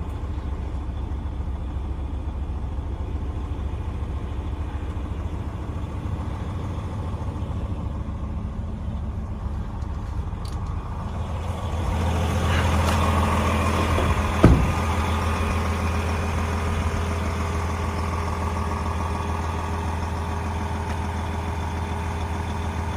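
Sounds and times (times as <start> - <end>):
diesel truck engine idling: 0.0 - 22.9
sharp knock: 14.4 - 15.0.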